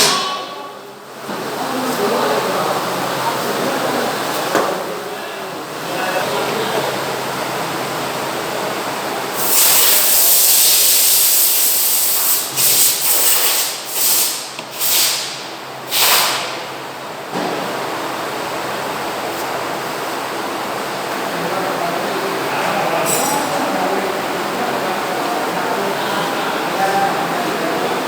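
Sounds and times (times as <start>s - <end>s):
pressurised spray bursts: 9.3s - 16.5s.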